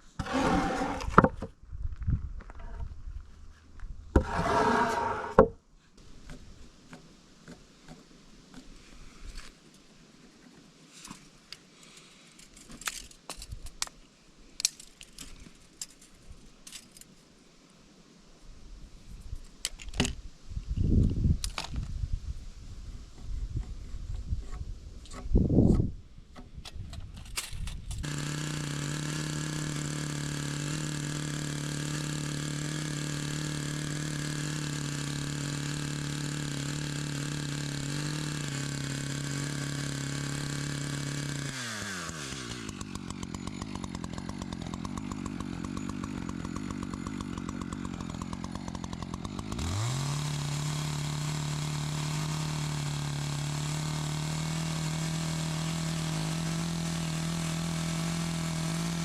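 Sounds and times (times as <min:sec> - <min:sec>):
chainsaw engine revving: 0:00.2 - 0:01.2, 0:04.2 - 0:05.4, 0:28.0 - 0:59.0.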